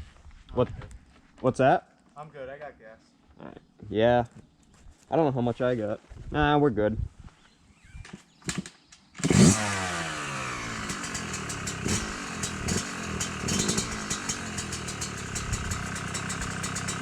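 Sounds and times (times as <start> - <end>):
dirt bike engine idling: 9.2 - 17.0.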